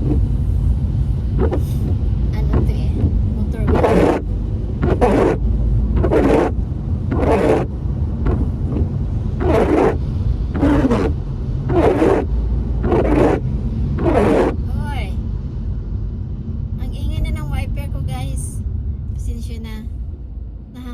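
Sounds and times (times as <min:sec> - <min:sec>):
wipers scraping wet windscreen: 0:00.0 - 0:15.1
road and engine rumble: 0:00.0 - 0:20.9.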